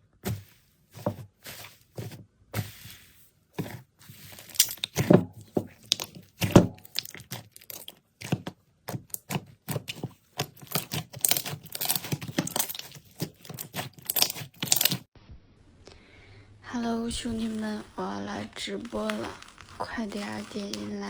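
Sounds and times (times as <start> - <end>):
slime crackling and popping: 4.4 - 5.2, 5.8 - 8.4, 9.0 - 15.1, 17.2 - 21.0.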